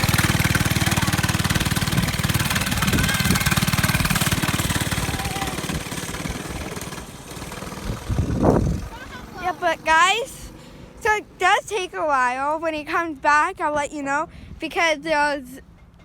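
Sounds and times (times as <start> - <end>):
mini bike engine running: 0.0 - 10.6.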